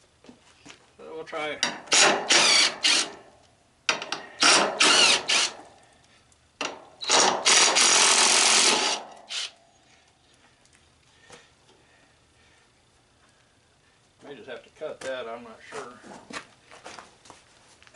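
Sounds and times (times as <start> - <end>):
handheld power driver whirring: 1.9 - 3.3, 4.0 - 5.7, 7.0 - 9.6.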